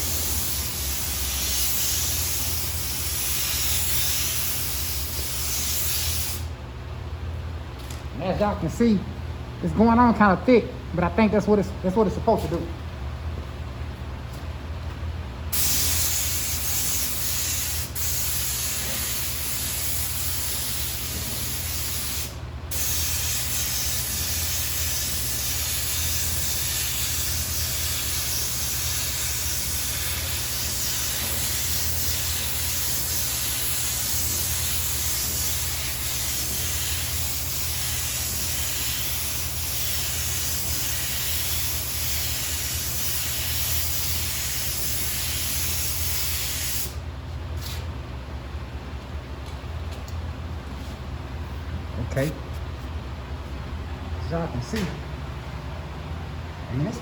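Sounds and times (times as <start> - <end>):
air spray gun hissing: 0.0 - 6.5, 15.5 - 47.0
steady low hum: 0.0 - 57.0.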